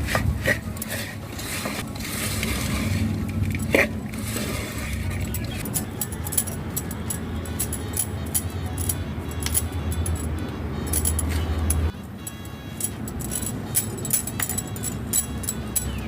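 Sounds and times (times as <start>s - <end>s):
background music: 0.0s - 16.0s
light clinks and rattles: 4.9s - 16.0s.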